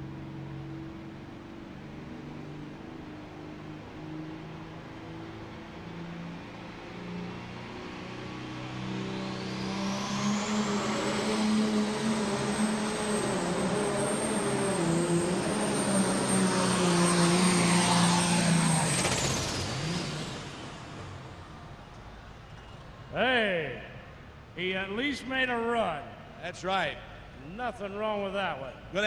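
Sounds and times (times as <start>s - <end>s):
turbocharger whine: 0.0s - 23.0s
diesel engine at full load: 0.0s - 29.0s.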